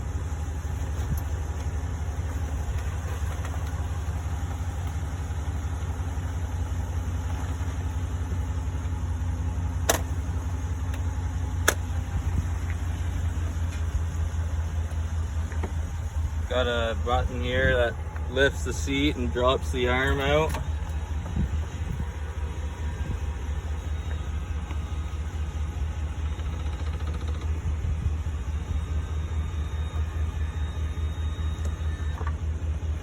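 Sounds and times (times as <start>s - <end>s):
vehicle engine idling: 0.0s - 33.0s
sharp clicks: 26.2s - 27.6s.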